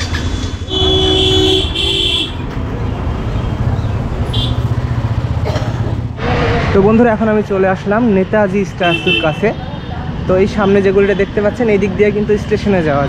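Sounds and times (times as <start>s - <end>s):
road traffic rumble: 0.0s - 13.0s
vehicle horn honking: 0.7s - 2.4s, 4.3s - 4.7s, 8.8s - 9.6s.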